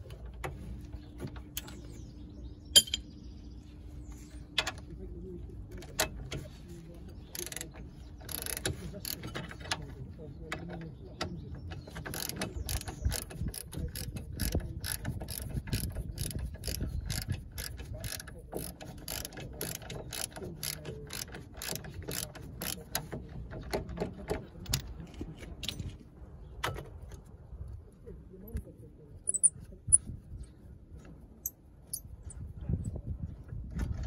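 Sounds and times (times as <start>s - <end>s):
socket ratchet clicking: 7.4s - 9.2s, 12.0s - 23.1s.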